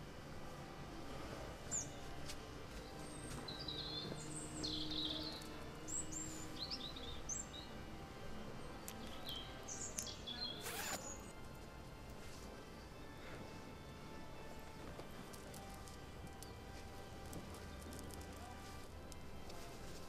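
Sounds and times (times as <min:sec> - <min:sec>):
low background hum: 0:00.0 - 0:20.0
small birds chirping: 0:01.7 - 0:02.0, 0:02.8 - 0:07.9, 0:08.6 - 0:11.3.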